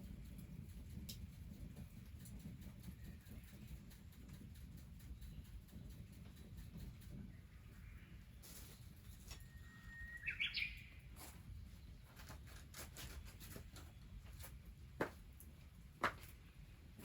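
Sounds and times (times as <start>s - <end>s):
faint clicks and taps: 0.2s - 7.3s
bird whistling call: 9.4s - 11.0s.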